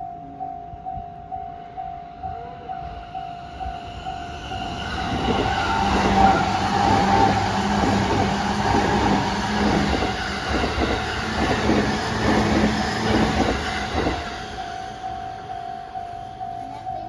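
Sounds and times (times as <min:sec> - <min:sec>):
crossing warning bell ringing: 0:00.0 - 0:17.0
train wheels clacking over rail joints: 0:05.2 - 0:14.5.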